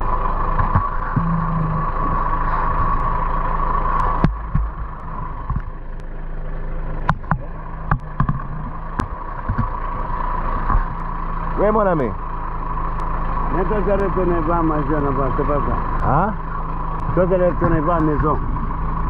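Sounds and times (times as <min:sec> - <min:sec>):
van engine running: 0:00.0 - 0:19.0
sharp knocks and rattles: 0:00.5 - 0:03.1, 0:04.0 - 0:06.0, 0:07.0 - 0:11.0.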